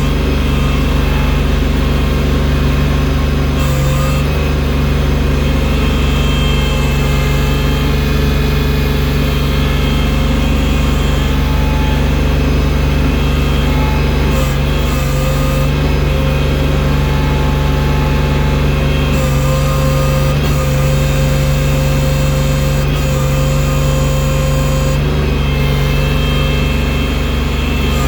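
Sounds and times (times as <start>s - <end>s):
loader engine running: 0.0s - 28.0s.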